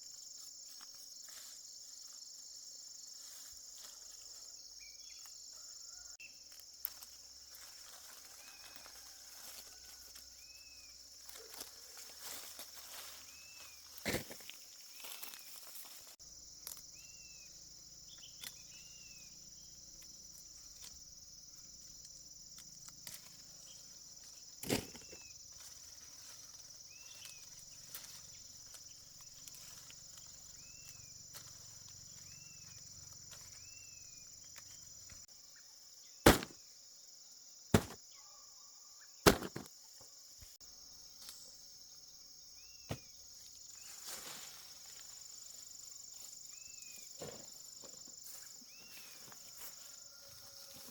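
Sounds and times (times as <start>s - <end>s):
short insect chirp: 0.0s - 50.8s
crickets droning: 0.0s - 50.9s
sharp knocks: 36.3s - 36.6s, 37.8s - 38.0s.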